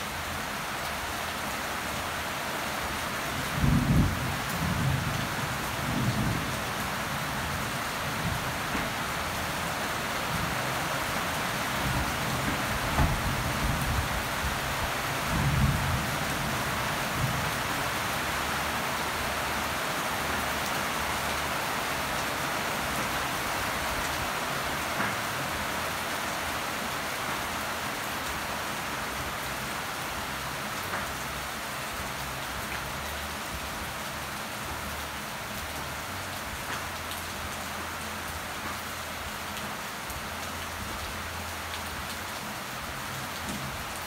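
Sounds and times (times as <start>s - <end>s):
rain falling on plants: 0.0s - 44.0s.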